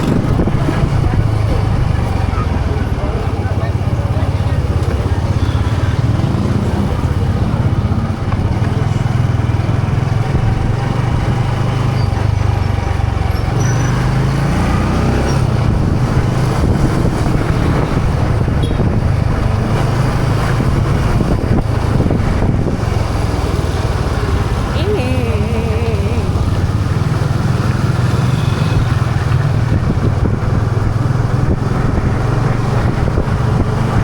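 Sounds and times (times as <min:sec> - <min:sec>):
wind noise: 0:00.0 - 0:02.1, 0:15.4 - 0:23.4, 0:28.8 - 0:34.0
road noise: 0:00.0 - 0:34.0.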